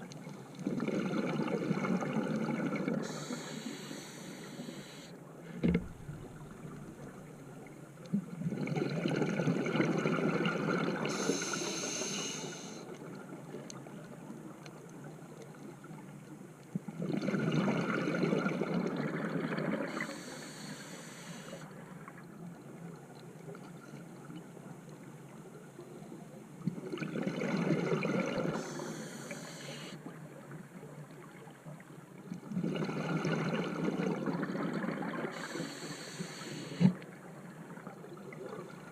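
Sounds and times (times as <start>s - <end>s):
regulator inhalation hiss: 3.0s - 5.1s, 11.1s - 12.8s, 19.9s - 21.7s, 28.6s - 30.0s, 35.3s - 37.0s.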